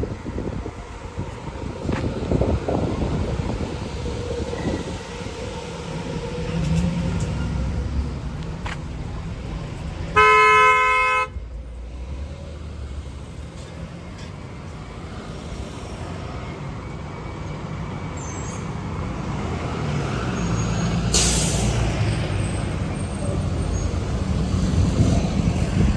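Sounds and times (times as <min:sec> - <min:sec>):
road traffic: 0:00.0 - 0:25.9
vehicle engine passing: 0:01.9 - 0:16.5
vehicle horn blast: 0:10.1 - 0:11.4.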